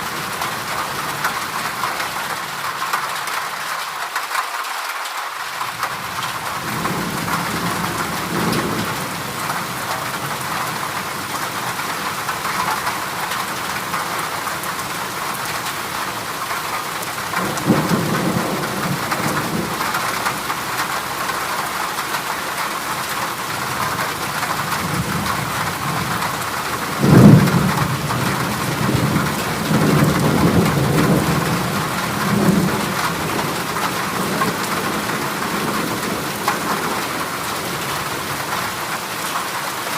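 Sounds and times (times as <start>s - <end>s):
heavy rain on a metal roof: 0.0s - 39.9s
thunder rumbling: 17.3s - 21.4s, 23.6s - 38.6s
loud thunder crack: 26.9s - 36.0s.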